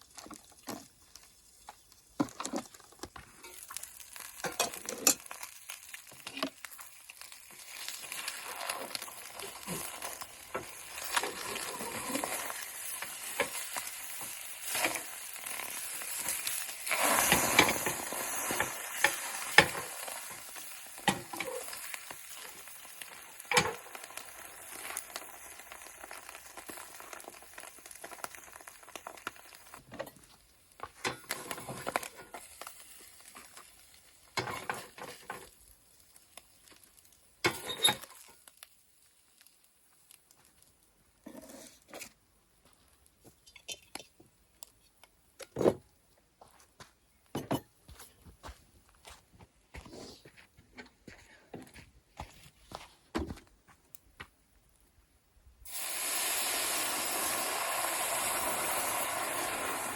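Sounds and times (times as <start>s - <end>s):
steady sizzling hiss: 0.0s - 51.2s, 52.1s - 59.9s
clicks and scrapes: 41.2s - 42.2s.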